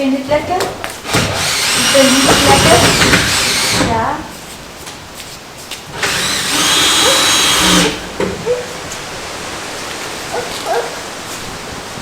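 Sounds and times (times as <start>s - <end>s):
power drill whining: 1.0s - 4.0s, 5.9s - 8.2s.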